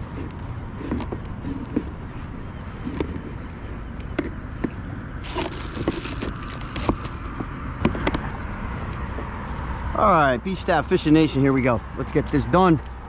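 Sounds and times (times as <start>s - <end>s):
fishing gear clicks and knocks: 5.2s - 7.2s.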